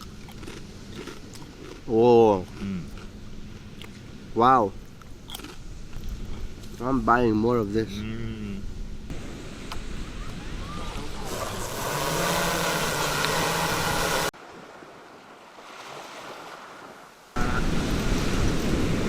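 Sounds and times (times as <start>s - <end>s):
engine hum: 8.4s - 14.4s
sea water noise: 9.1s - 19.0s.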